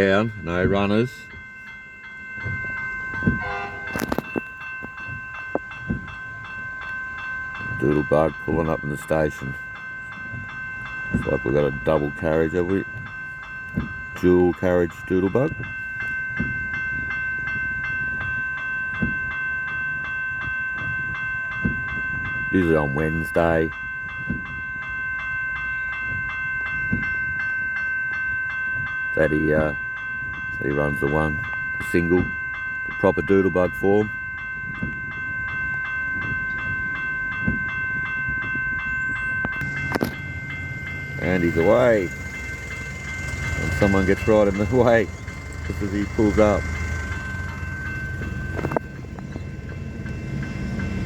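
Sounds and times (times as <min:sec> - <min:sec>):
diesel railcar rumbling: 0:00.0 - 0:51.0
level-crossing warning bell ringing: 0:00.0 - 0:51.0.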